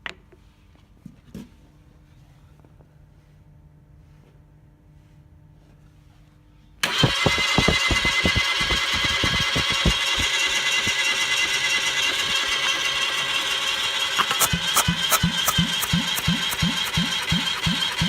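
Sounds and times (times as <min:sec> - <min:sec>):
car engine starting and running: 0:06.8 - 0:18.0.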